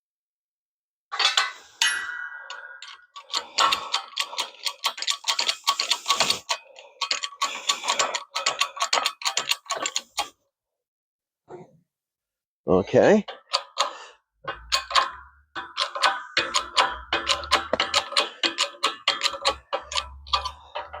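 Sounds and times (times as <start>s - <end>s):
ringing metal strike: 1.2s - 3.2s
rapid metallic clicking: 2.5s - 10.4s, 13.3s - 21.0s.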